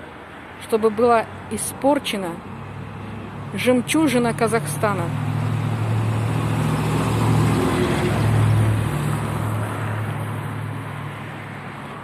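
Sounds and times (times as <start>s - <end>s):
vehicle passing by: 0.7s - 12.0s.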